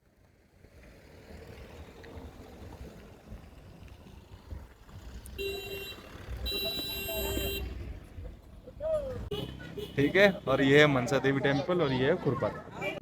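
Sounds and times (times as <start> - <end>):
vehicle passing by: 0.4 - 11.4
vehicle horn honk: 5.4 - 7.8, 9.3 - 10.5.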